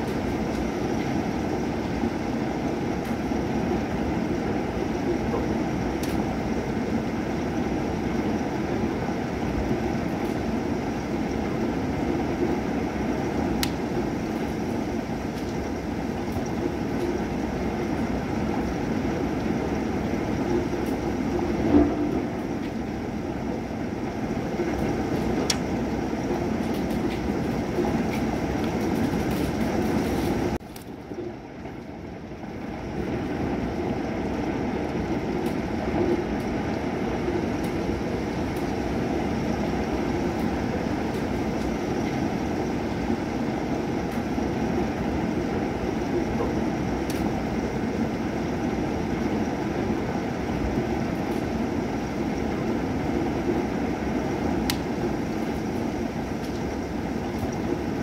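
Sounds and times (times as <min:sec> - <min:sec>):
heavy rain: 0:00.0 - 0:58.0
drip ticks: 0:13.6 - 0:13.8, 0:25.4 - 0:25.7, 0:54.7 - 0:54.9.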